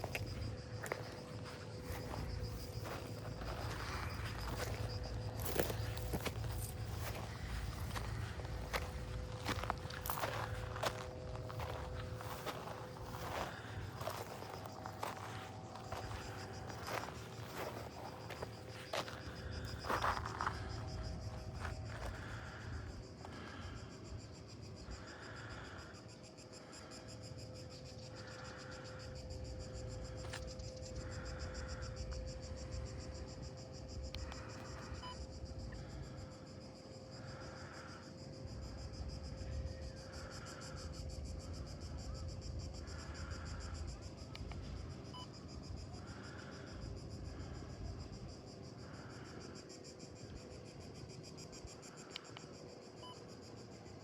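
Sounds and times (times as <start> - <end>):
crunching footsteps: 0.0 - 22.5
insects chirring: 0.0 - 54.0.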